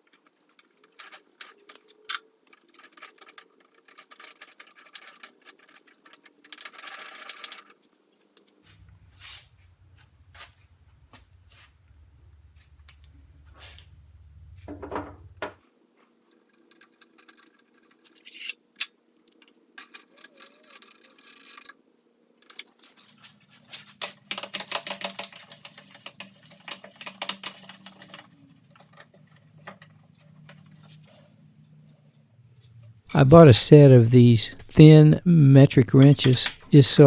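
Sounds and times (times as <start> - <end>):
metal parts and tools clattering: 0.0 - 8.4, 14.7 - 31.3, 35.8 - 36.8
low hum: 8.7 - 15.5.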